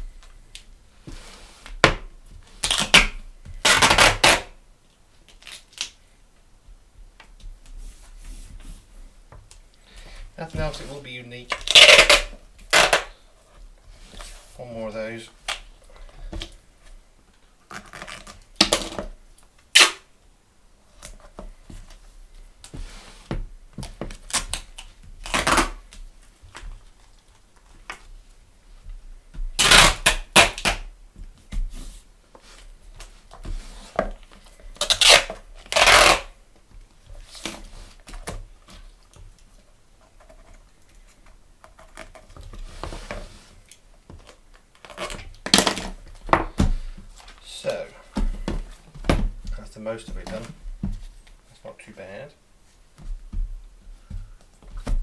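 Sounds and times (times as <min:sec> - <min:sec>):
adhesive tape tearing off roll: 0:02.5 - 0:04.6, 0:11.5 - 0:13.2, 0:19.7 - 0:20.1, 0:24.3 - 0:25.9, 0:29.6 - 0:30.9, 0:34.8 - 0:36.4.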